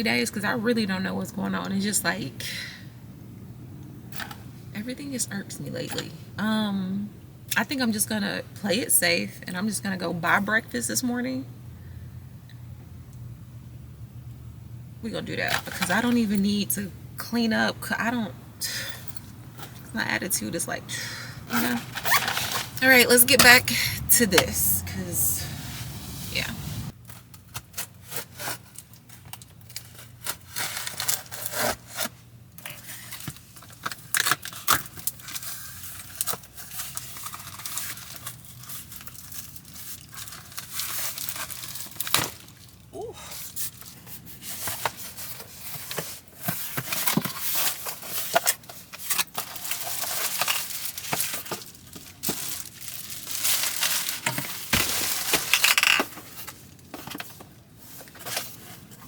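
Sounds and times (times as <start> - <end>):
rustling crinkling and tearing: 27.0 - 55.6.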